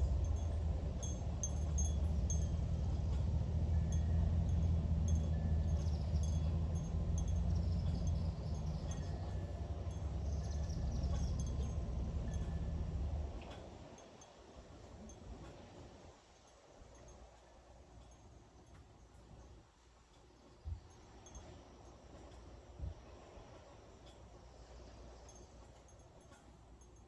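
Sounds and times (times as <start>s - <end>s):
wind buffeting microphone: 0.0s - 14.2s
wind chimes ringing: 0.0s - 14.4s.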